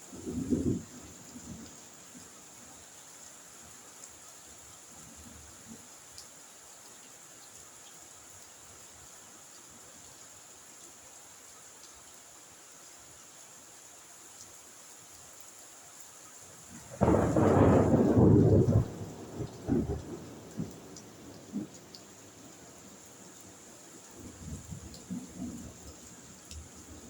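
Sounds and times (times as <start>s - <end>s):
faint rain: 0.0s - 27.0s
thunder crack and rumble: 17.0s - 21.8s.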